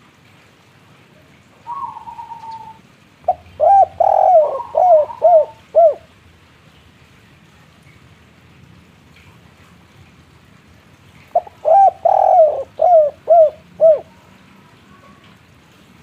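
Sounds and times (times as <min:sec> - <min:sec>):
dove cooing: 0:01.6 - 0:06.1, 0:11.3 - 0:14.3.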